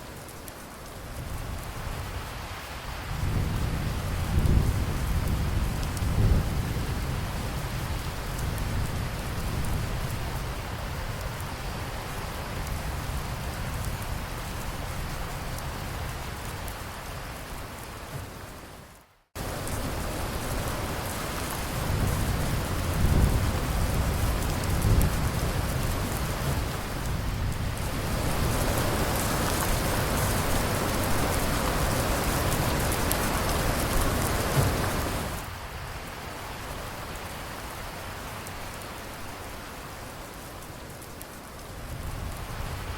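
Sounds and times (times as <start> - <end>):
steady rain: 0.0 - 42.9
rolling thunder: 3.1 - 11.0, 21.5 - 35.4.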